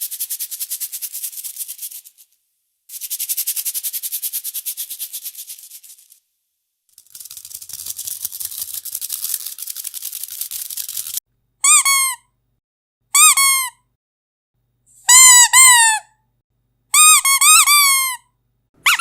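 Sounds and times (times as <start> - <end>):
shaken rattle: 0.0 - 6.3, 6.9 - 11.2
squeaky dog toy: 11.6 - 12.3, 13.1 - 13.8, 15.1 - 16.2, 16.9 - 19.0.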